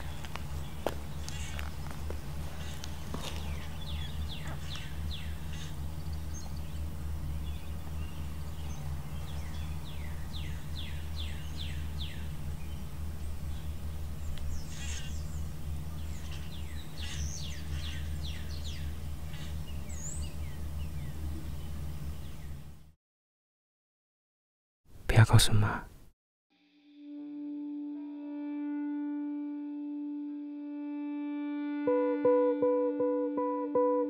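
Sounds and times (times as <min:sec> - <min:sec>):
birds chirping: 0:00.0 - 0:22.9
steady low hum: 0:00.0 - 0:23.0.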